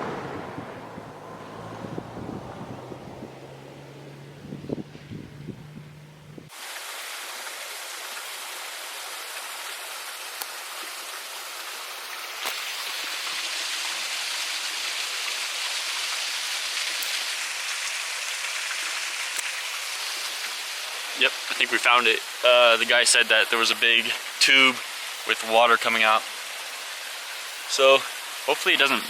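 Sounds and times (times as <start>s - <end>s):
flowing water rushing: 6.5s - 29.0s.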